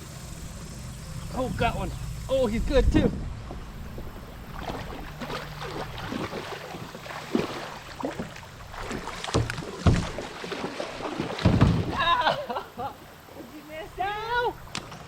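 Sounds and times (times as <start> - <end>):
water splashing: 0.0 - 15.0
hollow knocks against kayak hull: 7.3 - 10.4, 11.3 - 12.0
heavier thuds: 9.3 - 10.2.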